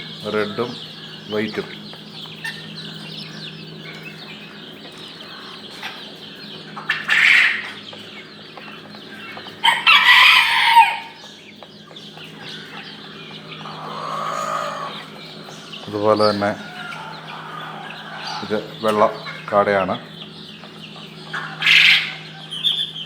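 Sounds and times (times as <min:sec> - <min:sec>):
chicks and quail peeping: 0:00.0 - 0:23.0
loud bird calls: 0:00.0 - 0:23.0.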